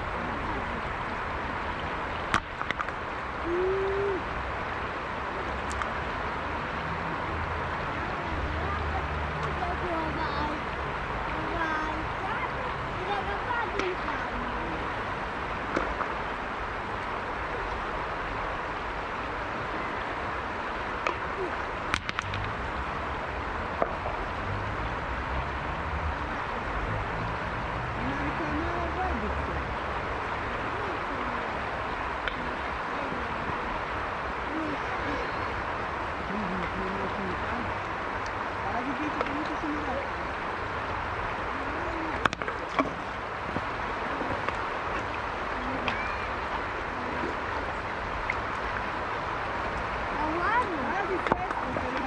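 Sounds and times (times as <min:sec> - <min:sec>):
river water rushing: 0:00.0 - 0:52.0
light ticks: 0:05.7 - 0:05.9.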